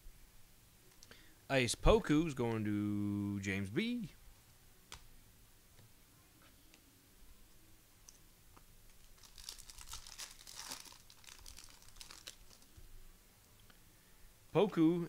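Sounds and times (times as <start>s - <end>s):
plastic wrapper crinkling and tearing: 8.9s - 12.8s.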